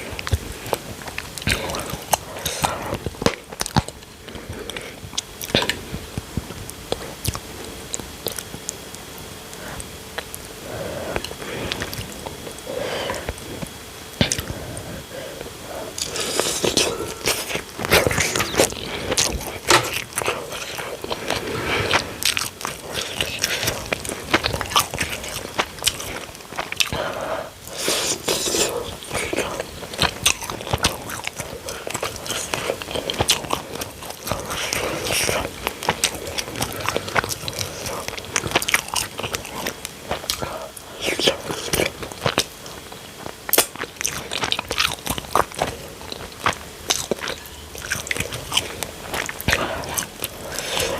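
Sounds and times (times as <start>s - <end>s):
person chewing: 0.0s - 50.9s
mouth clicks and smacks: 11.1s - 14.6s.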